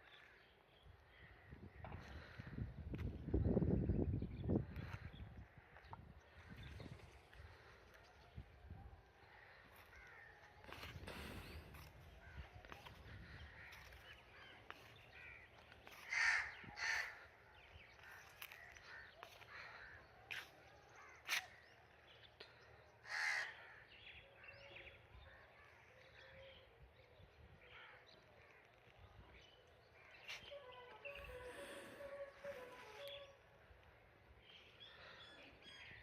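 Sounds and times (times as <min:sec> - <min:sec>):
faint outdoor background: 0:00.0 - 0:36.0
crow cawing: 0:15.2 - 0:17.3, 0:23.0 - 0:23.8.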